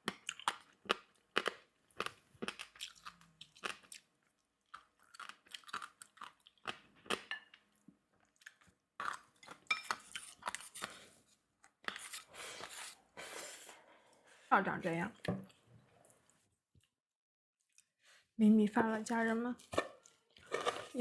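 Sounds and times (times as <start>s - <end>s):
person chewing crunchy food: 0.0s - 13.7s, 19.6s - 21.0s.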